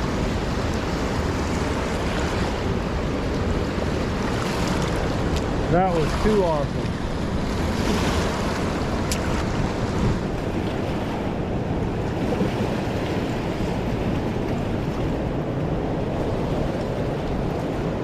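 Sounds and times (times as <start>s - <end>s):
river rushing: 0.0s - 18.0s
wind buffeting microphone: 0.0s - 18.0s.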